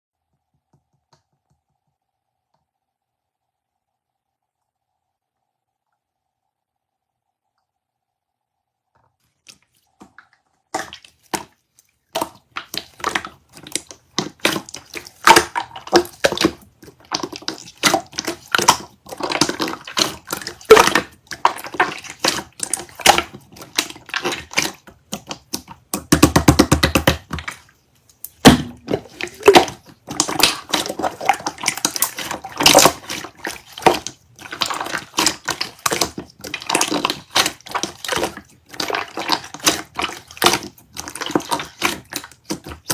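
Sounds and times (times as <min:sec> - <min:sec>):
slime squelching by hand: 0:09.1 - 0:42.9.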